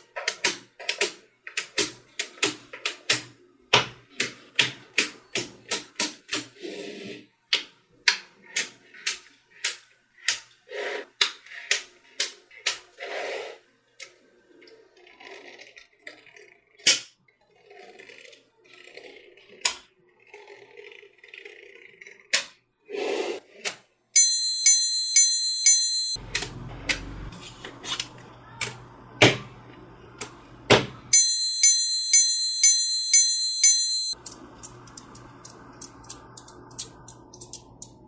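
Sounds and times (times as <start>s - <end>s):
magnetic balls clicking together: 34.2s - 38.0s.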